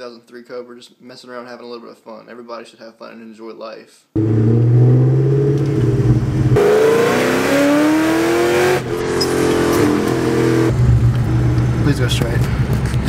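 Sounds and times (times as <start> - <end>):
car engine accelerating hard: 4.2 - 13.0.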